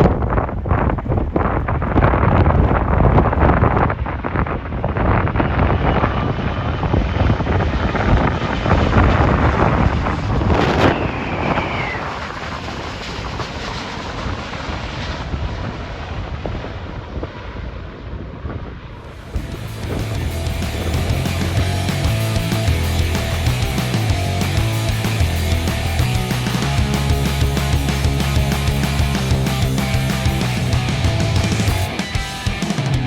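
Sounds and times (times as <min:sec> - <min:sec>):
wind buffeting microphone: 0:00.0 - 0:23.8
airliner jet engines overhead: 0:00.0 - 0:33.0.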